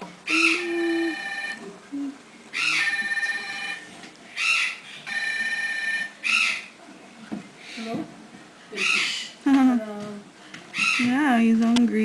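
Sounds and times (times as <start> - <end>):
parrots calling: 0.2 - 1.7, 2.5 - 6.8, 8.7 - 9.4, 10.7 - 11.4.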